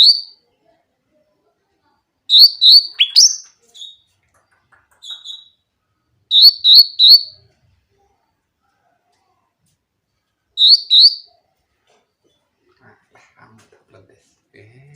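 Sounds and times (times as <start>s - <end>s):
bulbul singing whistled notes: 0.0s - 0.4s, 2.3s - 4.0s, 6.3s - 7.4s, 10.6s - 11.3s.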